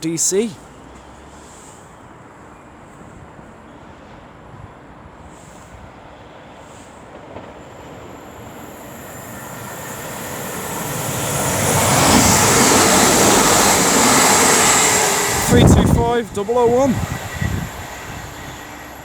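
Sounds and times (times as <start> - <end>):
train passing at speed: 0.0 - 19.0.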